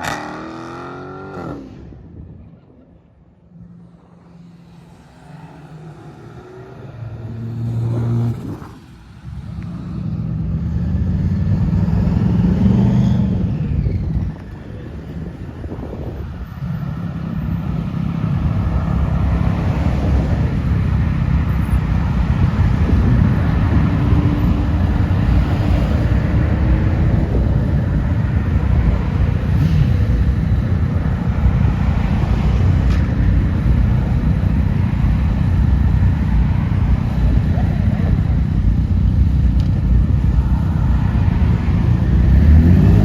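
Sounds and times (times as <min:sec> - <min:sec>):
car engine and exhaust rumbling: 0:00.0 - 0:43.0.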